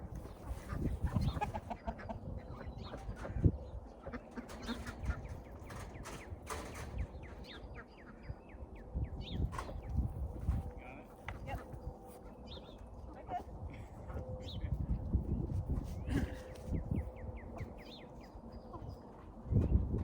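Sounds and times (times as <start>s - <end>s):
chickens clucking: 0.0s - 10.5s, 16.4s - 19.8s.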